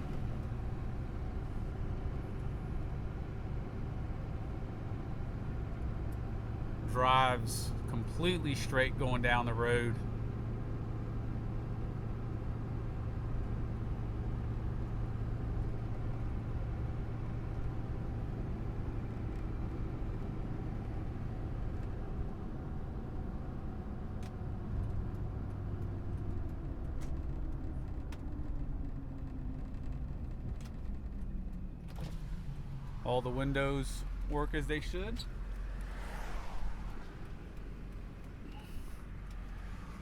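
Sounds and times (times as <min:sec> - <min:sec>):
diesel engine cabin drone: 0:00.0 - 0:40.0
road noise: 0:00.0 - 0:40.0.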